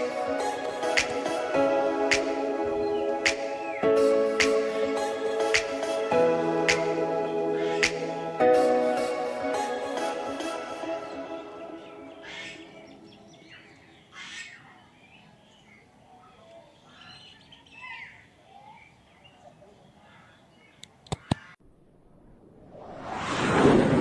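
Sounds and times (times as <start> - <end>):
birds chirping and calling: 11.8 - 21.5.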